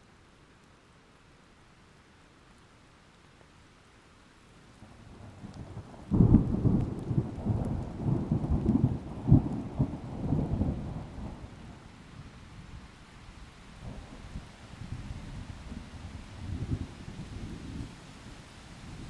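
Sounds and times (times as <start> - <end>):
rain: 0.0 - 19.0
thunder cracking and rumbling: 5.3 - 11.7.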